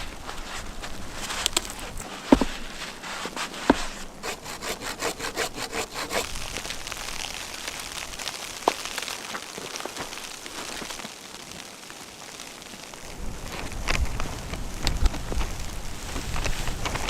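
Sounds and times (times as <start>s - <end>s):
hand saw cutting wood: 1.7s - 6.3s.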